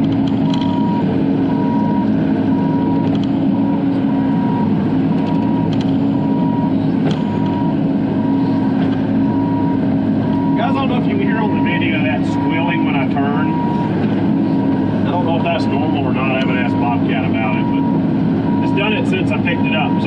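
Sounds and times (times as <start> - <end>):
mini excavator running: 0.0 - 20.0.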